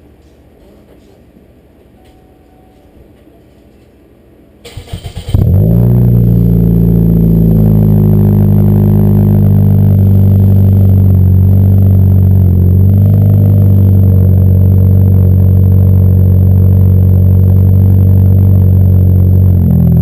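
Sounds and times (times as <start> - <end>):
car engine idling: 5.2 - 20.0.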